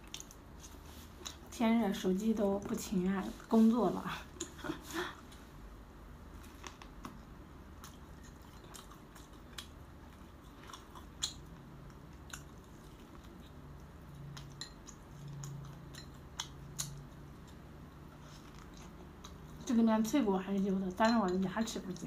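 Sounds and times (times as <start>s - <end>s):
chewing crunchy cartilage: 0.0s - 1.5s, 6.4s - 19.7s.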